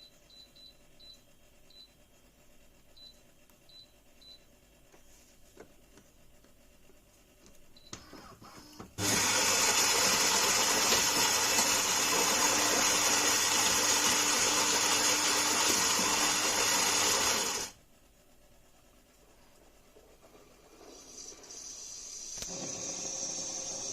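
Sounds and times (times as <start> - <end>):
coffee grinder running: 9.0 - 17.8, 20.3 - 23.9.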